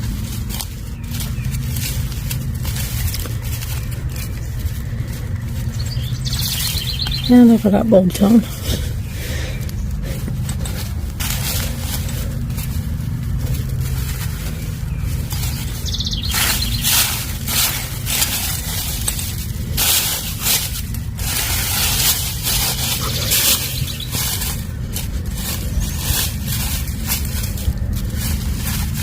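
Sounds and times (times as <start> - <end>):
soil scraping and rustling: 0.0 - 29.0
steady low hum: 0.0 - 29.0.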